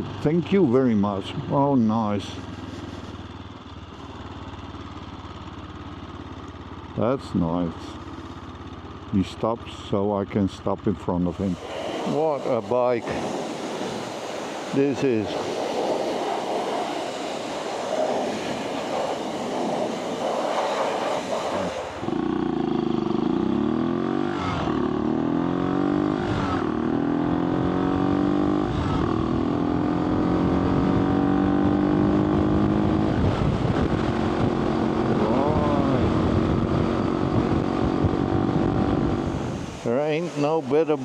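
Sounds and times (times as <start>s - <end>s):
motorcycle engine revving: 0.0s - 41.0s
road noise: 0.0s - 41.0s
wind noise: 11.3s - 22.1s, 32.4s - 39.9s.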